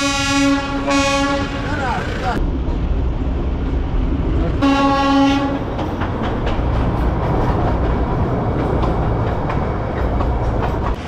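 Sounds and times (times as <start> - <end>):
train horn: 0.0 - 1.7, 4.6 - 5.7
wheels clicking over track: 5.6 - 11.0.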